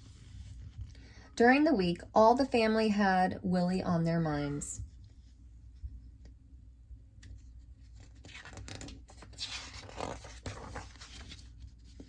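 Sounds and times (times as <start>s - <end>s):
paper page rustling: 7.4s - 12.0s.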